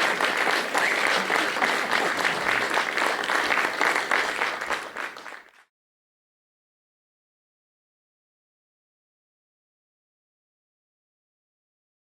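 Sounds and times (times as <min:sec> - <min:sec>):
audience clapping: 0:00.0 - 0:05.7.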